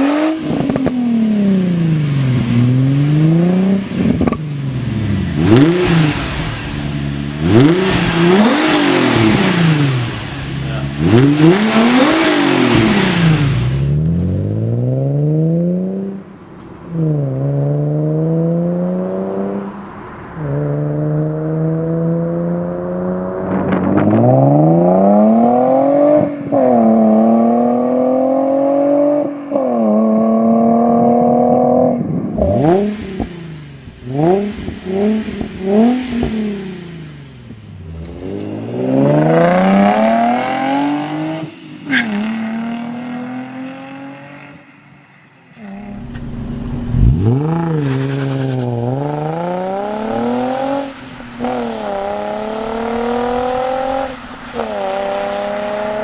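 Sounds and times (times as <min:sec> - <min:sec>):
engine revving: 0:00.0 - 0:16.1, 0:34.1 - 0:44.8, 0:45.6 - 0:56.0
car exhaust accelerating: 0:00.0 - 0:56.0.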